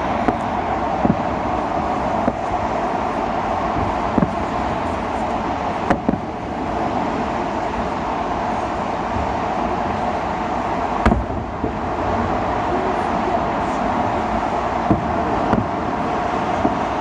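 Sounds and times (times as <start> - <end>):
fireworks bangs: 0.0 - 6.4, 11.0 - 11.8
city traffic noise: 0.0 - 17.0.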